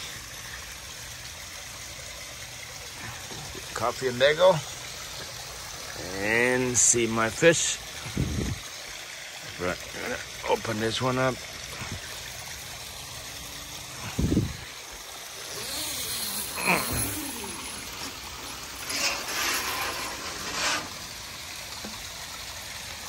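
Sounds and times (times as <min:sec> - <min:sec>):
waterfall splashing: 0:00.0 - 0:23.0.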